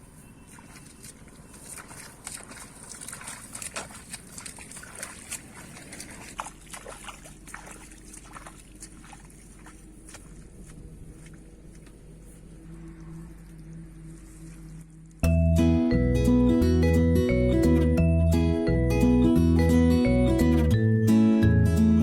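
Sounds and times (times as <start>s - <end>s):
water splashing and sloshing: 0.0s - 15.2s.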